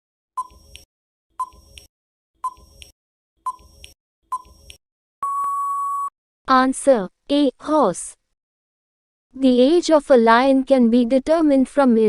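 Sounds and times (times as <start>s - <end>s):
timer ticks: 0.4s - 2.9s, 3.5s - 4.8s
steady electronic beep: 5.2s - 6.1s.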